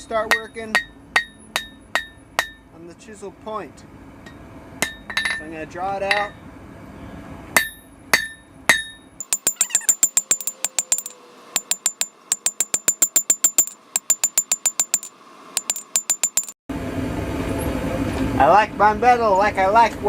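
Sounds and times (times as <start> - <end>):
hammer blows ringing on anvil: 0.0 - 2.7, 4.8 - 5.4, 7.6 - 16.6.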